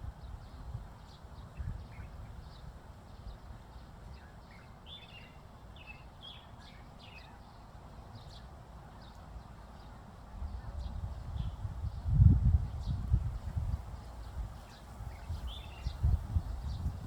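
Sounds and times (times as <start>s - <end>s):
small birds chirping: 0.2s - 17.0s.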